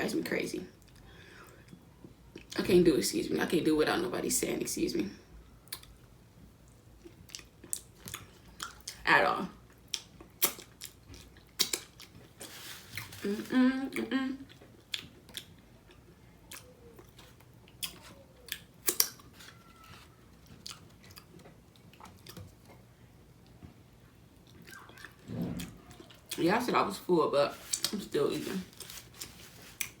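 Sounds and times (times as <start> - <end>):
close chewing and biting: 14.5 - 22.8, 24.4 - 26.4.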